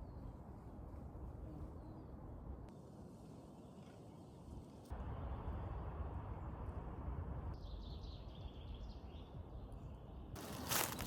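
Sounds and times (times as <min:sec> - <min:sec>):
steady low forest noise: 0:00.0 - 0:11.0
small birds chirping: 0:07.6 - 0:11.0.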